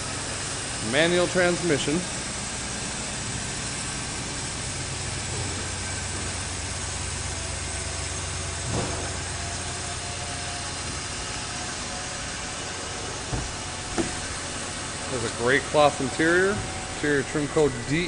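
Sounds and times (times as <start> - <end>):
truck engine idling: 0.0 - 18.0
brief bump: 8.6 - 9.4.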